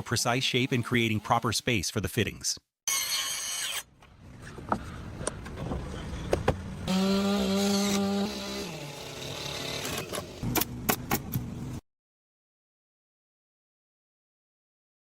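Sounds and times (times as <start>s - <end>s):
chainsaw cutting log: 2.9s - 3.9s, 6.8s - 10.6s.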